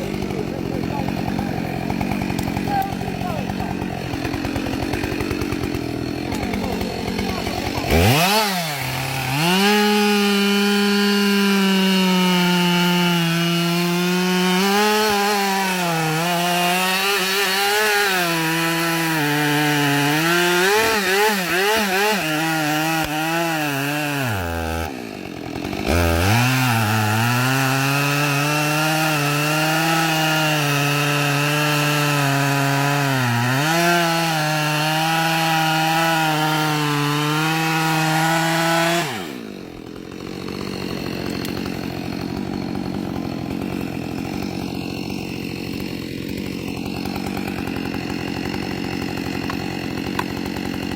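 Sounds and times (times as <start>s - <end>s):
chainsaw cutting wood: 0.0s - 50.9s.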